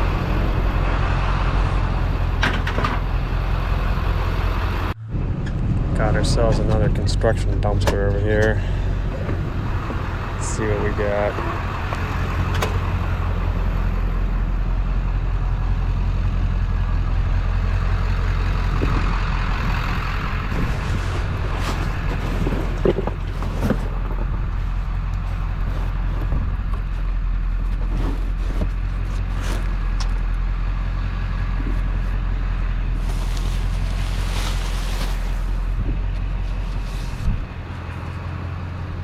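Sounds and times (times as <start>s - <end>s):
steady low rumble: 0.0s - 39.0s
knocks and clatters: 20.5s - 24.6s.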